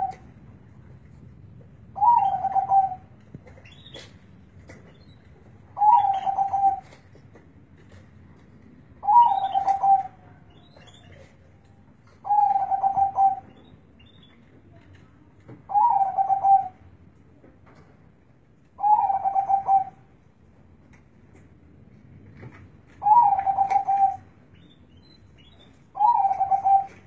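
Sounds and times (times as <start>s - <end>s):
dove cooing: 2.0s - 3.1s, 5.8s - 7.0s, 9.0s - 10.2s, 12.2s - 13.5s, 15.7s - 16.8s, 18.8s - 20.0s, 23.0s - 24.3s, 26.0s - 27.0s.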